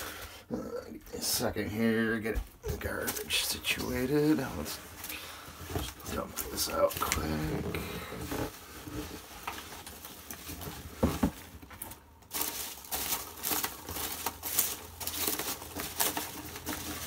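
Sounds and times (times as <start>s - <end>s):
packing material rustling: 2.2s - 17.0s
contents clattering: 9.1s - 17.0s.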